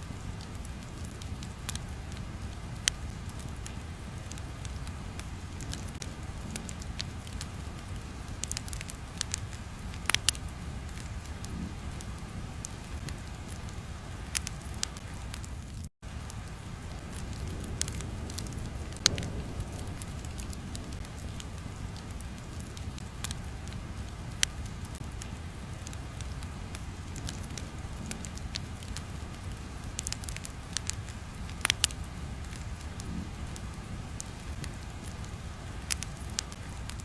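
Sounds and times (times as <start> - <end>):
fire crackling and popping: 0.0 - 37.0
low rumble: 16.1 - 31.4.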